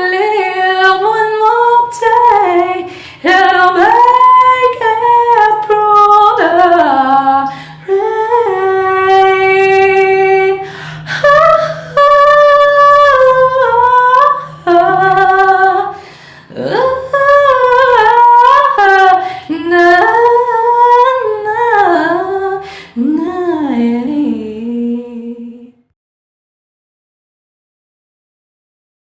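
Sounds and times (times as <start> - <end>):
person singing a cappella: 0.0 - 25.9.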